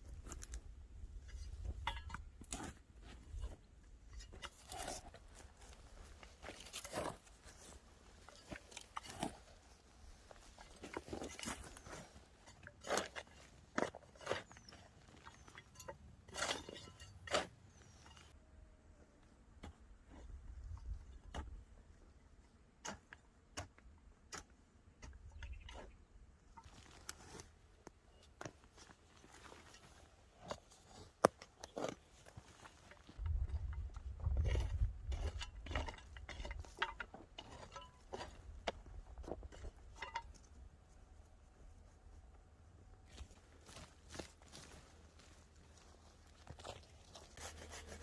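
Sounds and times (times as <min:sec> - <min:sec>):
dry plant stems crunching: 0:04.2 - 0:15.6, 0:26.6 - 0:40.3, 0:43.1 - 0:48.0.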